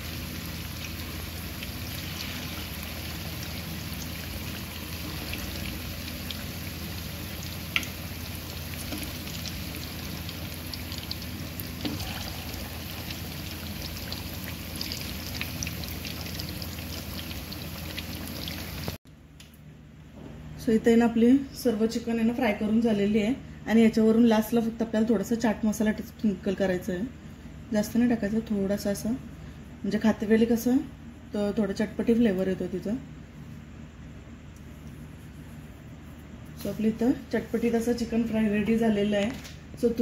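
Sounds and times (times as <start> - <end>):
chicken frying in hot oil: 0.0 - 19.0.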